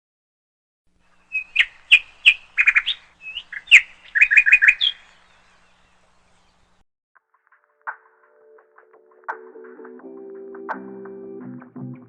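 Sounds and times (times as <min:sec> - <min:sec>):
small bird chirping: 0:01.0 - 0:06.8.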